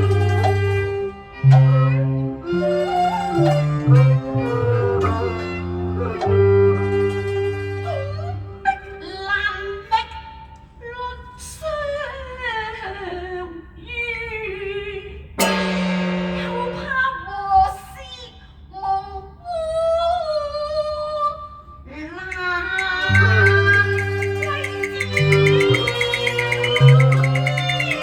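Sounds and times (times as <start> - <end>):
strings holding long notes: 0.0 - 8.7, 22.3 - 28.0
high voice singing ornamented melody: 22.3 - 28.0.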